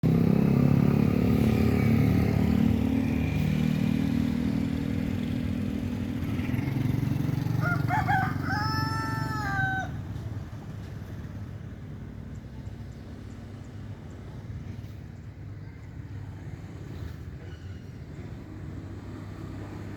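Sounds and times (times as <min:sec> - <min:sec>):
rooster crowing: 0:07.4 - 0:10.1.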